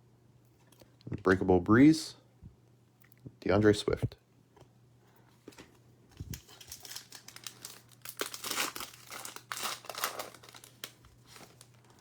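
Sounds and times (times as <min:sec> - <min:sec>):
plastic wrapper crinkling and tearing: 0:06.2 - 0:12.0.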